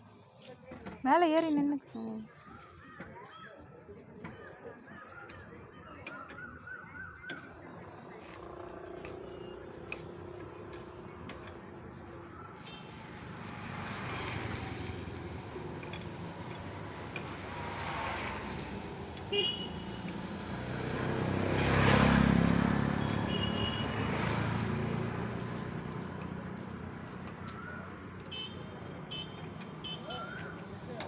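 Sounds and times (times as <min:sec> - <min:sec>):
road traffic passing: 0:06.3 - 0:31.0.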